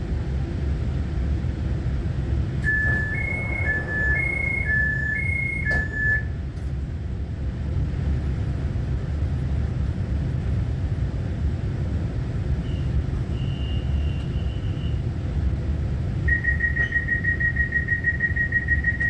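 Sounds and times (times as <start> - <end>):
train cabin low rumble: 0.0 - 19.0
two-pitch electronic warning beeps: 2.6 - 6.3, 16.3 - 19.0.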